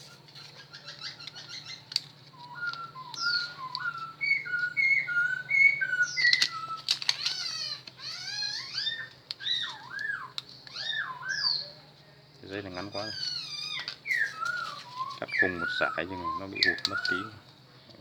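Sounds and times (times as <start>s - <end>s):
songbird singing: 0.0s - 18.0s
sharp clicks: 6.1s - 10.8s, 16.6s - 17.6s.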